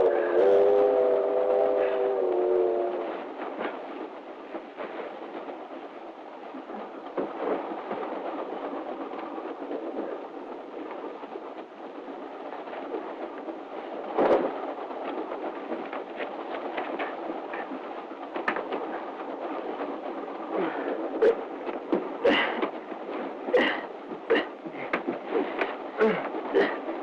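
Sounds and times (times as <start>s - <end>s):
railway car running noise: 0.0s - 27.0s
knocks and thumps: 14.1s - 26.9s.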